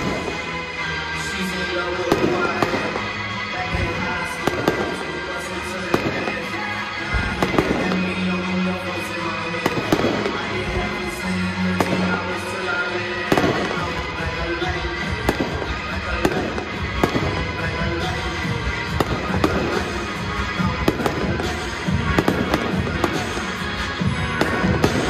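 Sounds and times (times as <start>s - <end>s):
fireworks bangs and pops: 0.0s - 0.6s, 2.0s - 5.2s, 5.8s - 8.3s, 9.6s - 12.6s, 13.2s - 14.2s, 15.0s - 25.0s
music: 0.0s - 25.0s.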